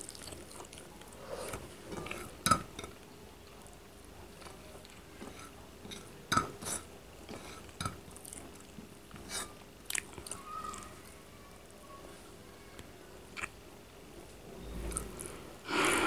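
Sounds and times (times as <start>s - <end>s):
person chewing food: 0.0s - 2.4s, 7.3s - 11.0s
mouth clicks and smacks: 13.4s - 13.6s.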